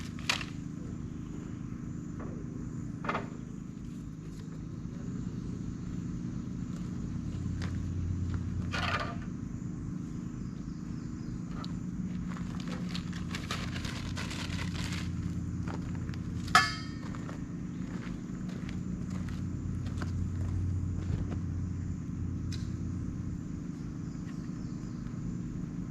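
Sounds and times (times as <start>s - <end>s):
clicks and knocks of gear: 0.0s - 0.6s
low motor hum: 0.0s - 25.9s
sharp ringing clink: 16.5s - 17.2s.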